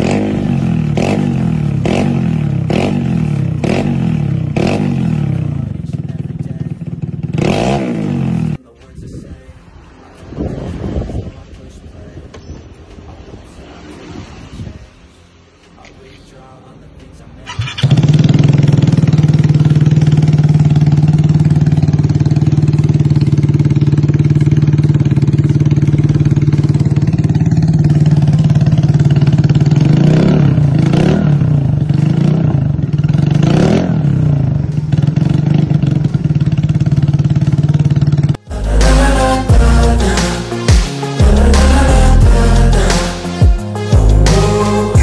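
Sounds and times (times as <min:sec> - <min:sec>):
scooter engine idling: 0:00.0 - 0:07.5, 0:17.4 - 0:38.4
engine revving: 0:00.0 - 0:08.6, 0:17.4 - 0:43.4
music: 0:38.4 - 0:45.0.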